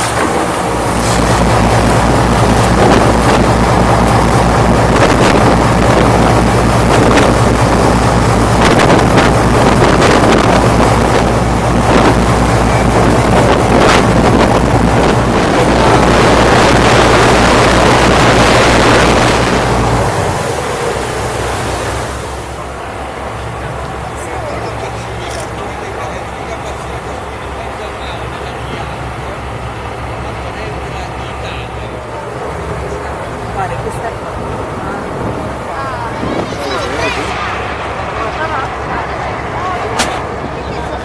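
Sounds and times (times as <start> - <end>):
wind buffeting microphone: 0.0 - 21.9, 33.7 - 41.0
motorboat engine running: 0.0 - 41.0
water rushing past hull: 0.0 - 41.0.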